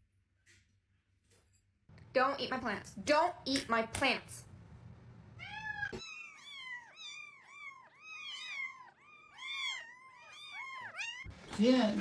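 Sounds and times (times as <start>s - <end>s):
cat mewing: 5.4s - 11.3s.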